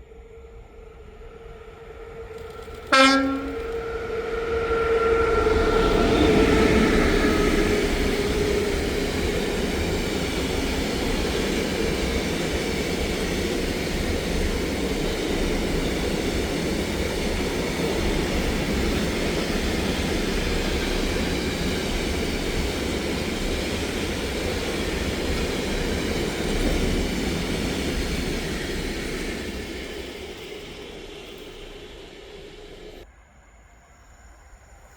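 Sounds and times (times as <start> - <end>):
train wheels rumbling on rails: 0.9 - 33.1
train horn: 2.4 - 9.7.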